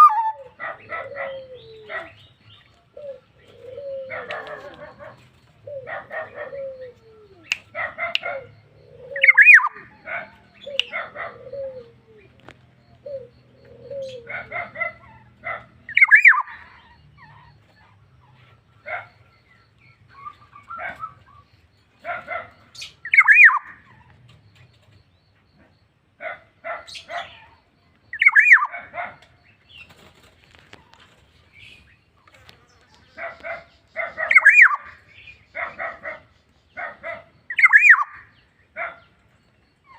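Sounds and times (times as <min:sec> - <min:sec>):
bird singing with loud whistle: 0:00.0 - 0:00.5, 0:06.8 - 0:11.0, 0:15.9 - 0:16.6, 0:22.8 - 0:23.8, 0:28.1 - 0:28.7, 0:34.3 - 0:35.5, 0:37.5 - 0:38.3.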